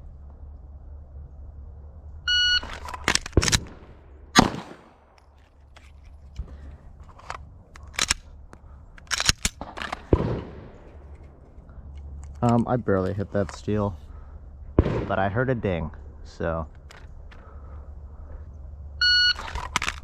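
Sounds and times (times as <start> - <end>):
shot timer beep: 2.3 - 2.7
pistol being loaded: 2.6 - 3.8, 4.4 - 10.2, 19.2 - 20.0
pistol shots: 2.6 - 5.2, 9.1 - 11.0, 14.8 - 15.4.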